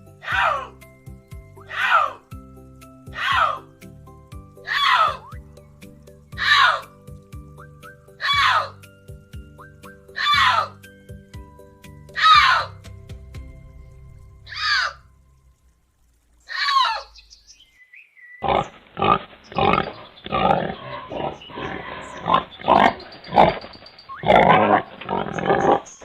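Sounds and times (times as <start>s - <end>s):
pig grunting: 18.4s - 26.0s.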